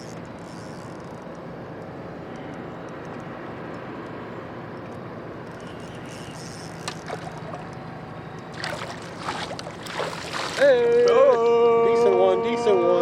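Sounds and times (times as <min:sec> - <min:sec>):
water noise: 0:05.4 - 0:11.3
boat motor running: 0:05.4 - 0:11.4.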